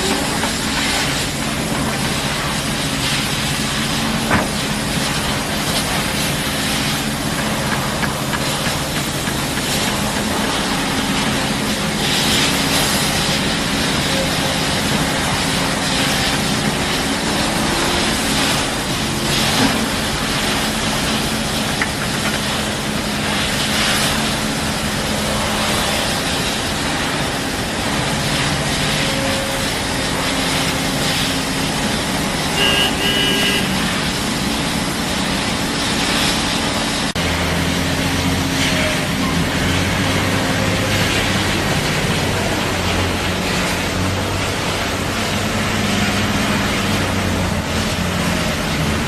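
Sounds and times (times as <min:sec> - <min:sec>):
diesel construction machinery running: 0:00.0 - 0:49.0.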